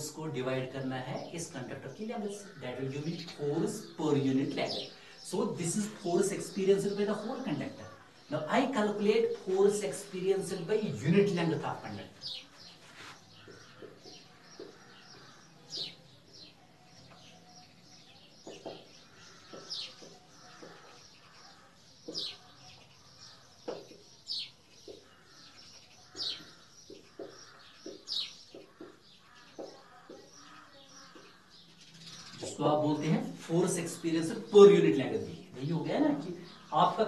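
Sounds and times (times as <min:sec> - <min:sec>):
bird chirping: 0:00.0 - 0:37.0
marker writing on whiteboard: 0:12.2 - 0:16.0, 0:18.4 - 0:32.6.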